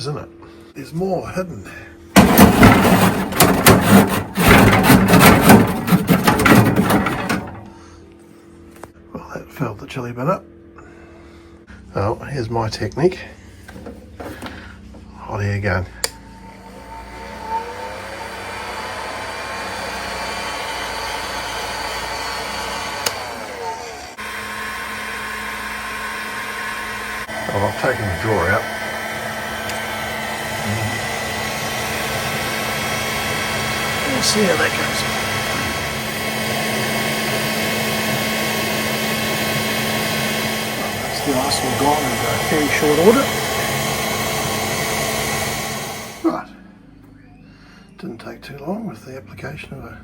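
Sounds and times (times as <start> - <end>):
hot air gun blowing: 2.2 - 7.8, 16.0 - 46.2.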